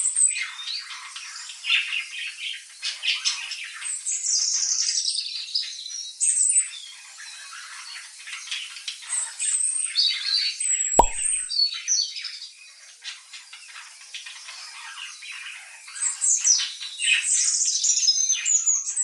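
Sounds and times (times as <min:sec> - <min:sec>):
sharp pop: 0:11.0 - 0:11.4.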